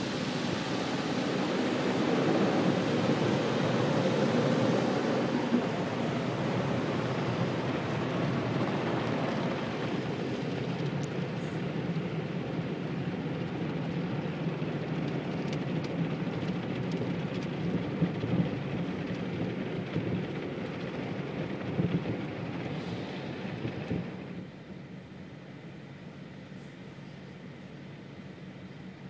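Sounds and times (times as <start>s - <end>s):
car wash spraying and scrubbing: 0.0s - 19.2s.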